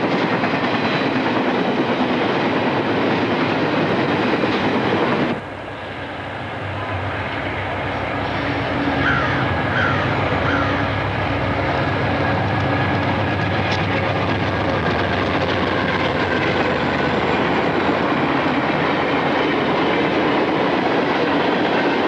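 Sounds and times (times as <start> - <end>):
train rolling past: 0.0 - 22.0
diesel locomotive rumble: 3.8 - 21.3.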